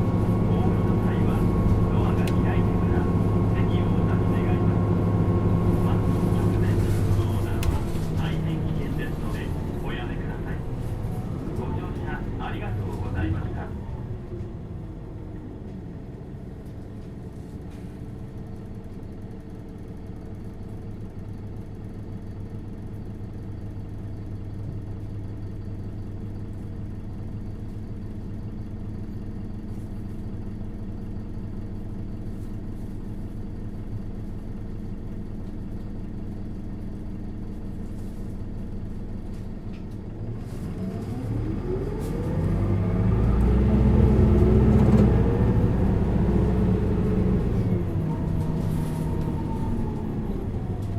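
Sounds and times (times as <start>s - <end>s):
bus engine revving up: 0.0s - 14.8s, 40.2s - 50.9s
bus diesel engine idling: 0.0s - 50.9s.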